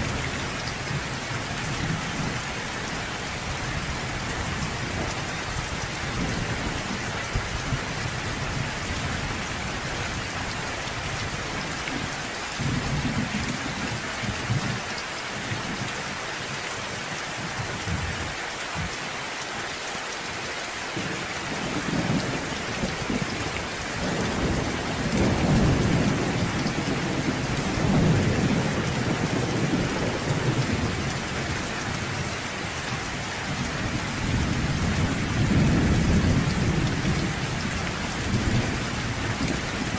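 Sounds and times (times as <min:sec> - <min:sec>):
rain falling: 0:00.0 - 0:39.9
thunder rumbling: 0:21.0 - 0:32.3, 0:33.5 - 0:39.9.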